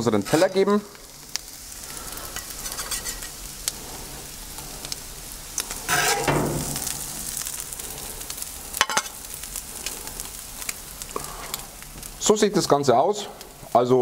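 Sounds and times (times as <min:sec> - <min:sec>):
food sizzling on griddle: 0:00.0 - 0:14.0
metal spatula scraping: 0:00.3 - 0:00.6, 0:02.3 - 0:03.4, 0:05.8 - 0:07.7.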